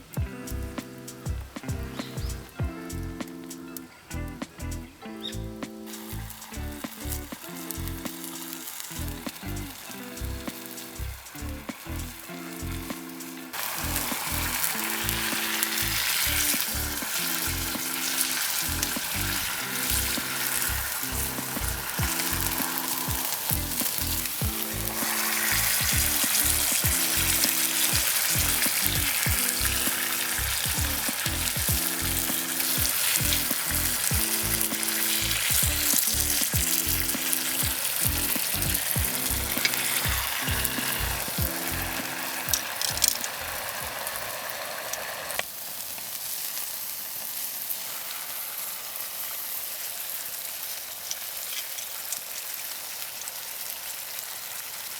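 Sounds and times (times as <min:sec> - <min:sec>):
background music with bass line: 0:00.0 - 0:08.1, 0:09.0 - 0:13.0, 0:18.6 - 0:43.6
food sizzling in sandwich maker: 0:00.0 - 0:54.9.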